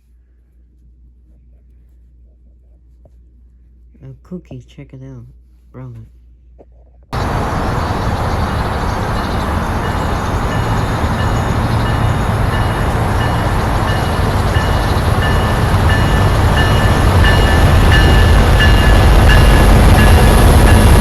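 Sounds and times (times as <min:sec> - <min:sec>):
freight train rumbling past: 0:07.2 - 0:21.0.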